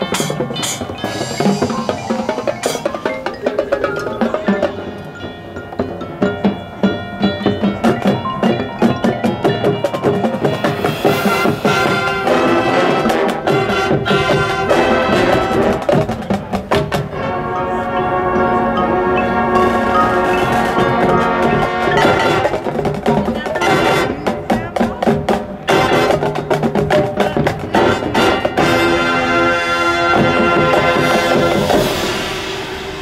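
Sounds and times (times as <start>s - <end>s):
mallet percussion strikes: 0.0s - 13.7s, 15.9s - 23.9s
held brass chords: 0.0s - 24.8s, 25.6s - 33.0s
marching band playing: 0.0s - 33.0s.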